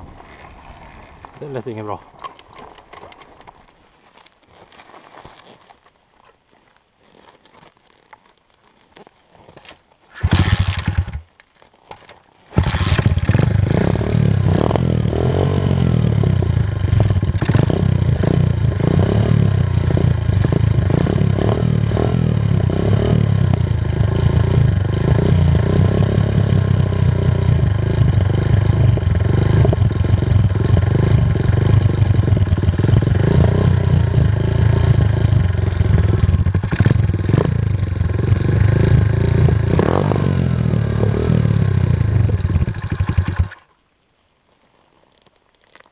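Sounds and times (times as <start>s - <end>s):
small motorcycle engine starting: 10.1s - 11.3s, 12.5s - 43.7s.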